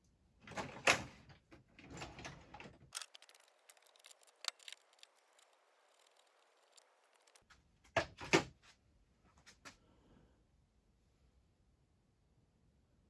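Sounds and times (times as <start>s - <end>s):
hand tools and metal parts clinking: 3.0s - 7.4s.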